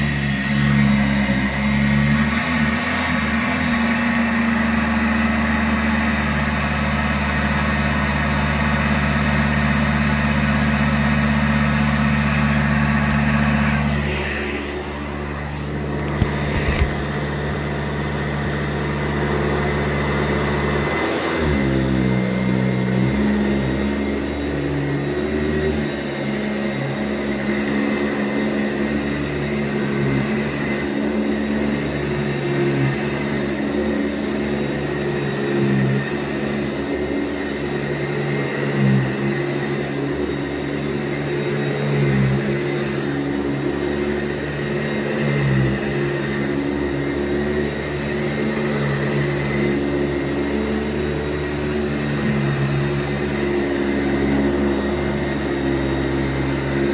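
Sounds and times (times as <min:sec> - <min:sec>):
vacuum cleaner running: 0:00.0 - 0:56.9.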